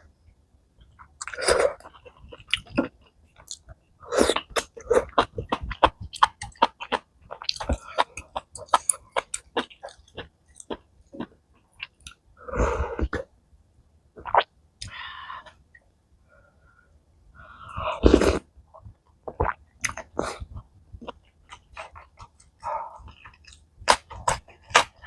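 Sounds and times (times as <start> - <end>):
person chewing and slurping: 4.2 - 11.3, 19.3 - 25.0.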